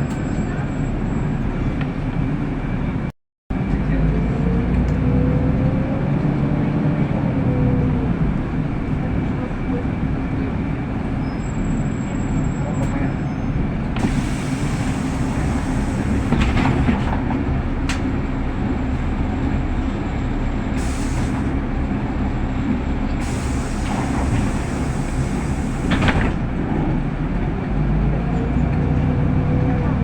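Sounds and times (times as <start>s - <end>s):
bus engine rumble: 0.0s - 30.0s
bus cabin rattling: 7.1s - 30.0s.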